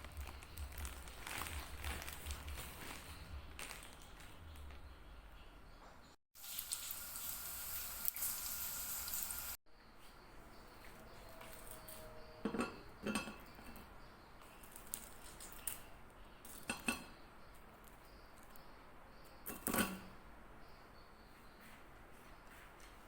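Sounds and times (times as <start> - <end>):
dishes and cutlery clinking: 11.5 - 13.9, 16.5 - 17.2, 19.4 - 20.2.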